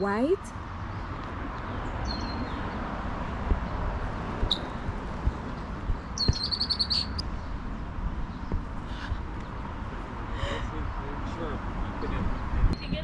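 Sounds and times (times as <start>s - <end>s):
songbird chirping: 6.2s - 7.2s.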